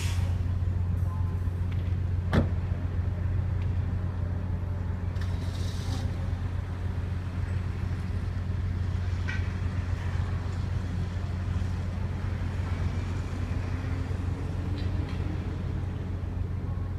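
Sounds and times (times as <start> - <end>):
brief hiss: 0.0 - 0.4
ferry engine drone: 0.0 - 16.9.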